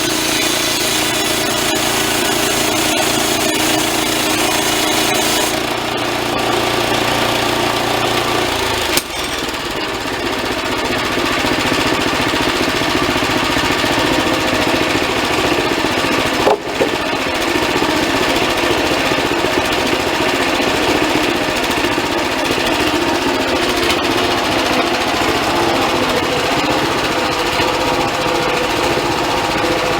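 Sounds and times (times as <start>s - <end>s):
high-pitched saw cutting: 0.0s - 9.7s
band sawmill engine running: 0.0s - 29.9s.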